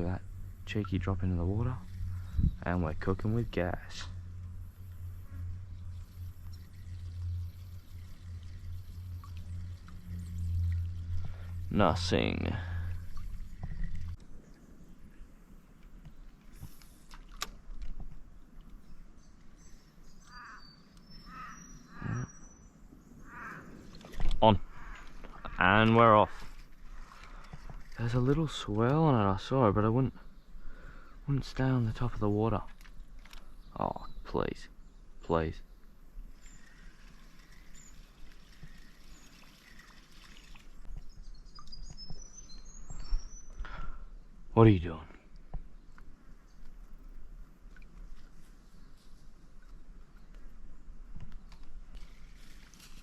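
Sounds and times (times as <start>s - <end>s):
high bird chirps: 19.2s - 23.8s, 36.4s - 43.9s
crow cawing: 20.3s - 22.2s, 23.2s - 23.8s, 24.7s - 25.6s.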